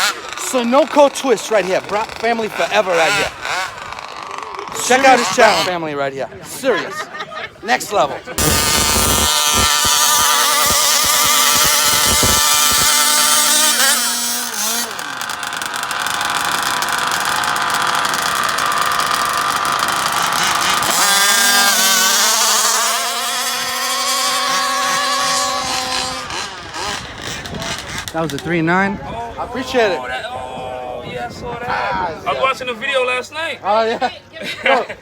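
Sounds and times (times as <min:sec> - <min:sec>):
small two-stroke engines buzzing: 0:00.0 - 0:05.9, 0:08.4 - 0:28.5.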